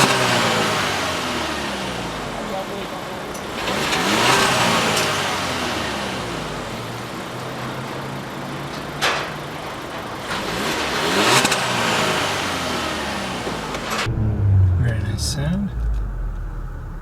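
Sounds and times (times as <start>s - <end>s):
car engine revving: 0.0s - 8.4s, 10.2s - 17.0s.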